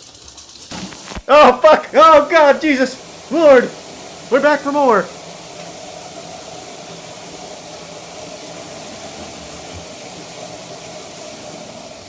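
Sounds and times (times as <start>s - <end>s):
water spraying from broken pipe: 0.0s - 12.0s.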